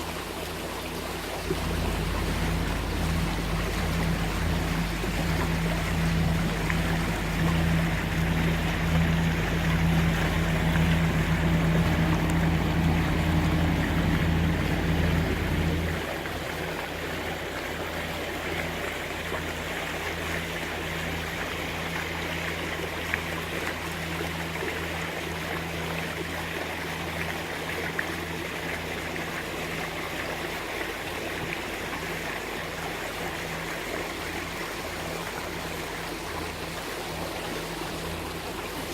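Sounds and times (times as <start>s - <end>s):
water rushing past hull: 0.0s - 38.9s
diesel engine humming: 1.4s - 29.7s.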